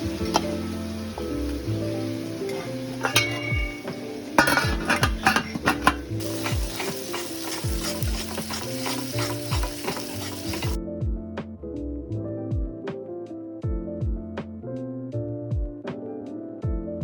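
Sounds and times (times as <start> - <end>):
food sizzling in a pan: 0.0 - 10.8
background music with beat: 0.0 - 17.0
stirring clicks: 4.4 - 10.8.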